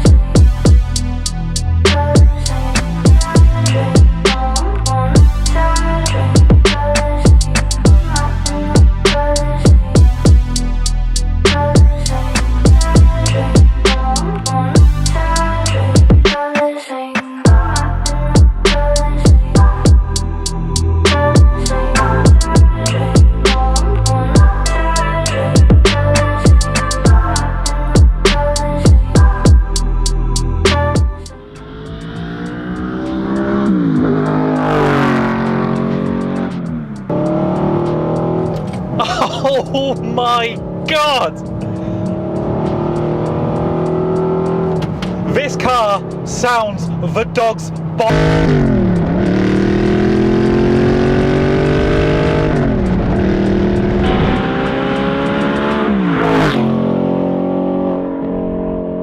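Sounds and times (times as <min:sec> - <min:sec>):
car engine revving: 0:29.6 - 0:59.0
exhaust crackle: 0:31.6 - 0:56.2.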